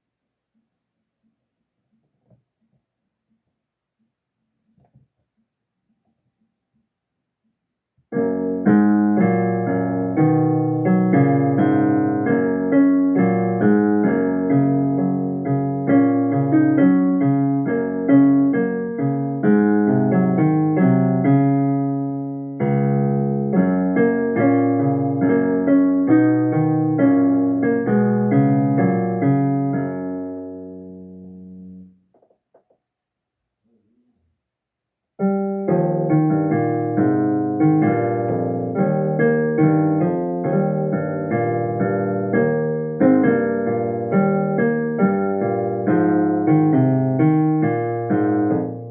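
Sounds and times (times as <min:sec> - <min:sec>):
piano solo piece: 0:08.1 - 0:32.0, 0:35.2 - 0:48.9.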